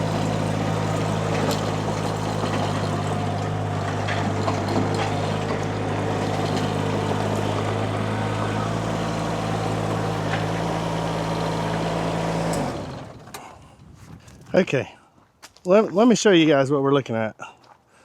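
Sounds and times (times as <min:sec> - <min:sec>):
skid steer engine running: 0:00.0 - 0:14.3.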